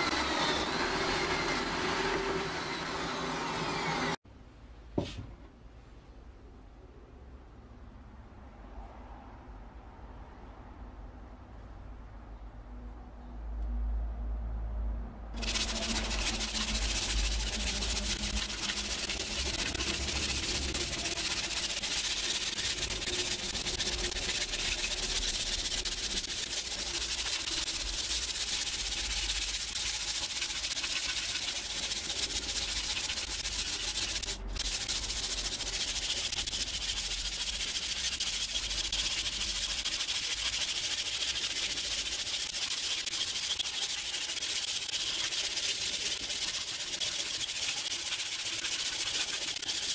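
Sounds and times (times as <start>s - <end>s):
sandpaper rubbing on wood: 15.4s - 49.9s.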